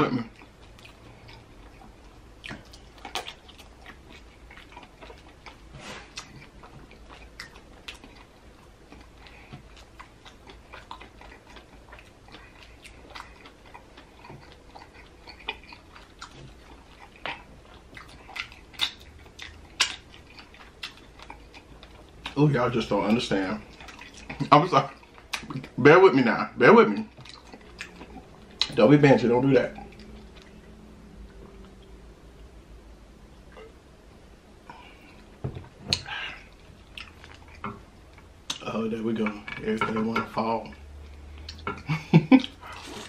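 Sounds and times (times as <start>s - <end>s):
wet chewing mouth clicks: 0.3s - 22.4s.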